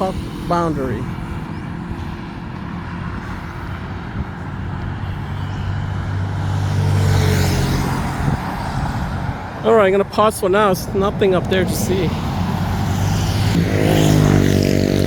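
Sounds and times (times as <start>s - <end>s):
steady traffic: 0.0s - 15.0s
vehicle engine driving past: 11.6s - 15.0s.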